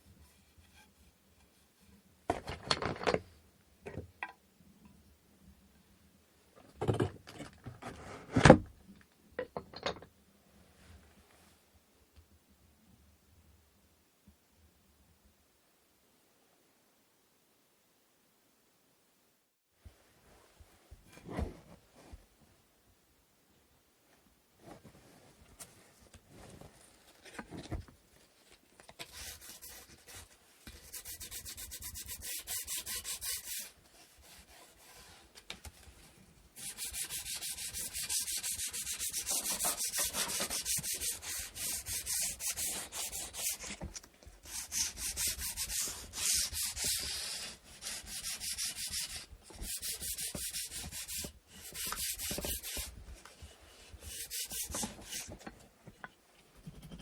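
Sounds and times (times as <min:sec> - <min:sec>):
sandpaper rubbing on wood: 0:30.8 - 0:34.9, 0:36.6 - 0:43.8, 0:44.5 - 0:52.9, 0:54.1 - 0:55.3.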